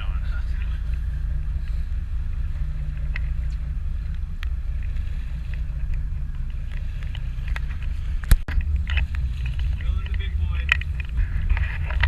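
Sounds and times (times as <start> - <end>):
boat engine humming: 0.0 - 12.0
wind on microphone: 0.0 - 12.0.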